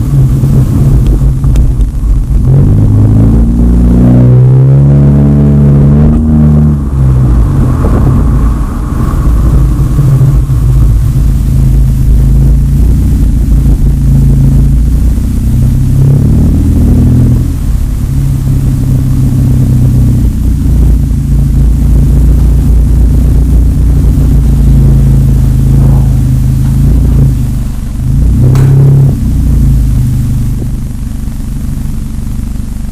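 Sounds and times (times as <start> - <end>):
car exhaust rumbling: 0.0 - 32.9.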